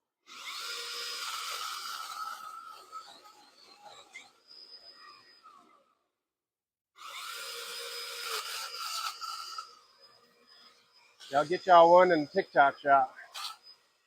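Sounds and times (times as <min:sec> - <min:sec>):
electric chainsaw cutting branches: 0:00.3 - 0:04.3, 0:07.0 - 0:09.9, 0:11.2 - 0:14.0.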